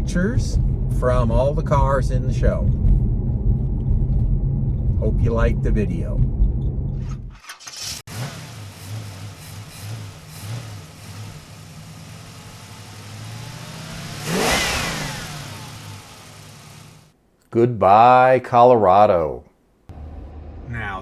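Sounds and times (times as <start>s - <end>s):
car driving drone: 8.1s - 17.1s, 19.9s - 21.0s
vehicle passing by: 8.8s - 17.0s.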